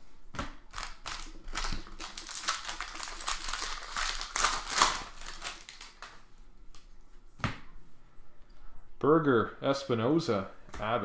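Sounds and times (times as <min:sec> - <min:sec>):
cards rustling: 0:00.7 - 0:06.2
foil wrapper crinkling: 0:00.7 - 0:06.2.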